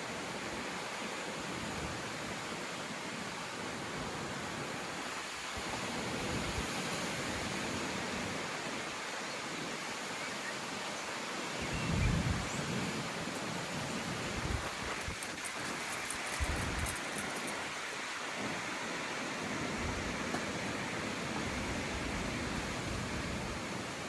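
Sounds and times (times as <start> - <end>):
wind buffeting microphone: 11.6 - 18.6
strong wind blowing: 11.6 - 18.7, 19.5 - 23.8.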